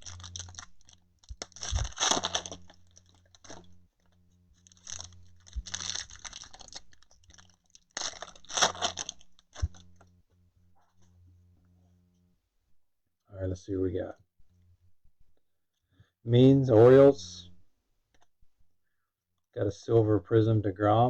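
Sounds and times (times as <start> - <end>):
wrappers crinkling and tearing: 0.0 - 10.1.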